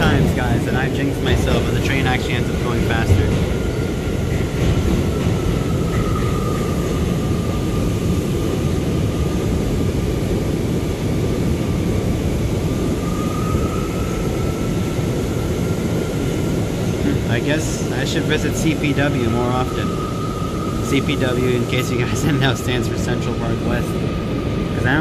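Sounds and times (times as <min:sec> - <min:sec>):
subway train wheels rumbling: 0:00.0 - 0:25.0.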